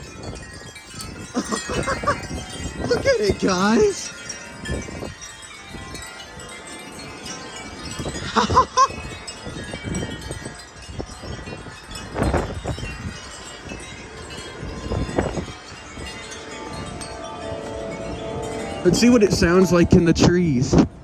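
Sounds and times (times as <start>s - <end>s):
wind buffeting microphone: 0.0s - 21.0s
wind chimes ringing: 0.0s - 21.0s.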